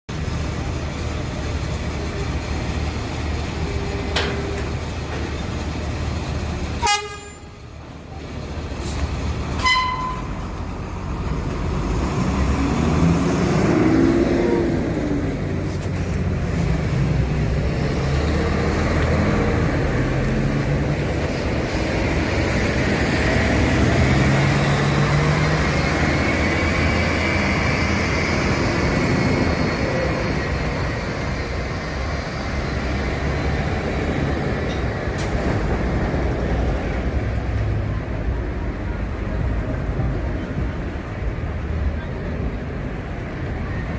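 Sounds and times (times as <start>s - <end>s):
diesel coach engine running: 0.1s - 43.9s
horn toots: 6.8s - 7.6s, 9.6s - 10.4s.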